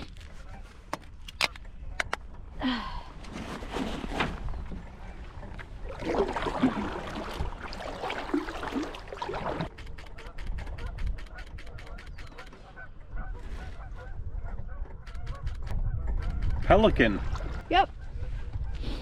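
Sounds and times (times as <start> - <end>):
paddle splashing through water: 3.8 - 9.8.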